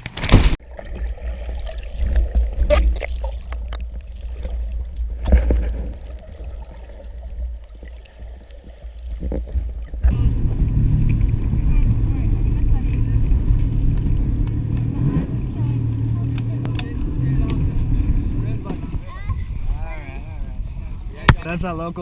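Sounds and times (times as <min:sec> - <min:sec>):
small splashes: 0:00.0 - 0:11.6
water sloshing and gurgling: 0:00.0 - 0:21.6
low rumble: 0:09.6 - 0:21.3
jet ski engine cutting off: 0:10.0 - 0:19.2.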